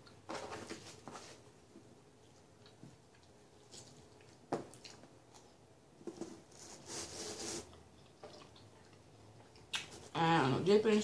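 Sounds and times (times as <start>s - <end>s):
person chewing pizza: 2.2s - 5.7s, 7.1s - 10.1s.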